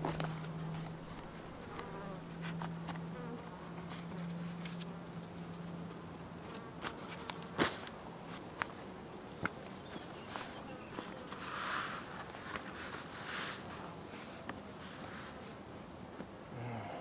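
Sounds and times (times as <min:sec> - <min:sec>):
flying insect buzzing: 0:00.0 - 0:05.0.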